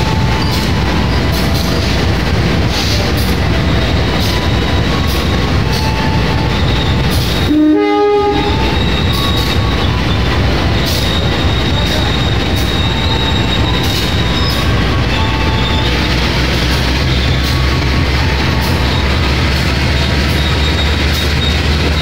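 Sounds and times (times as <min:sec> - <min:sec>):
train coaches rumbling past: 0:00.0 - 0:22.0
train horn blast: 0:05.7 - 0:09.6.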